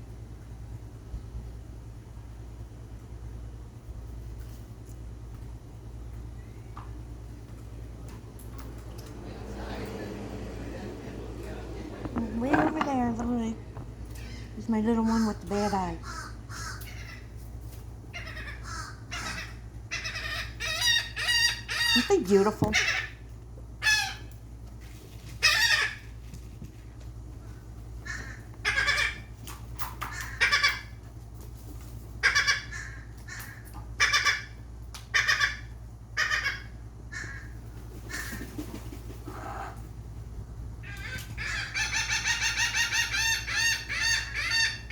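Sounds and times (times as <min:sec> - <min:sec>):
seagulls squawking: 0:28.1 - 0:29.3, 0:40.8 - 0:44.9.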